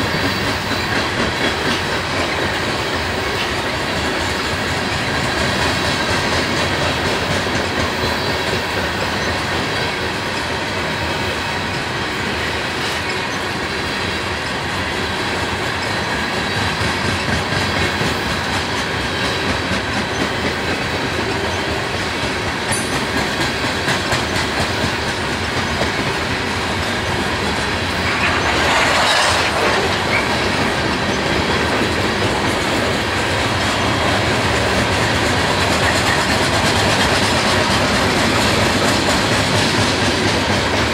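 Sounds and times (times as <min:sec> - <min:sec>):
train wheels clattering over rail joints: 0:00.0 - 0:40.9.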